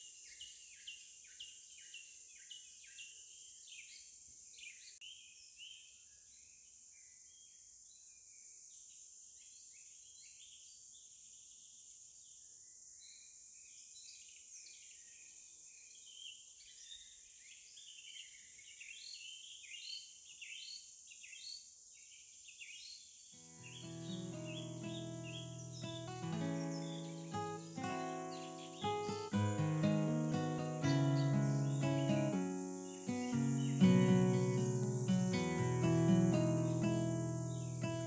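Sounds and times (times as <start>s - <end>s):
birds chirping: 23.4s - 38.0s
high-pitched insect drone: 23.6s - 38.0s.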